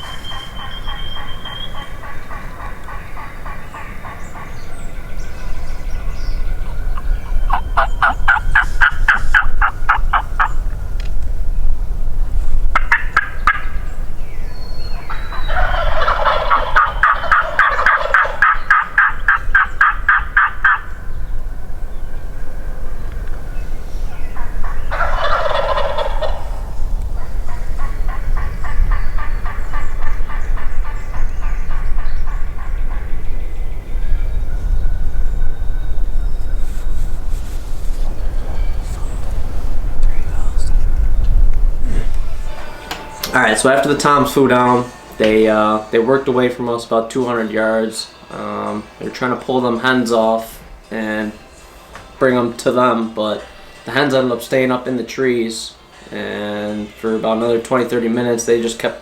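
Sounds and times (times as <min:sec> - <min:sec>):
wild turkeys calling: 0:00.0 - 0:10.8, 0:12.6 - 0:34.6, 0:41.9 - 0:59.0
steady low rumble: 0:00.0 - 0:42.8.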